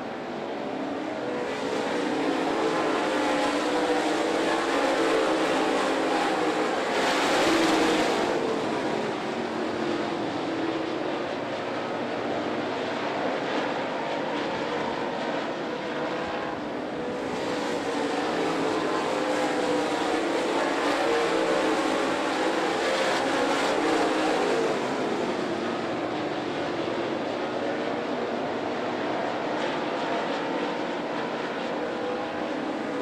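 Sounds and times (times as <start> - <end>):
race car engines passing: 0.0 - 33.0.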